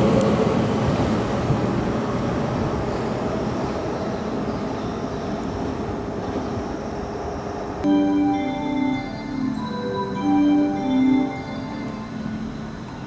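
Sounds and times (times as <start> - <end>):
electric train rumbling: 0.0 - 13.0
station chime melody: 7.8 - 13.0.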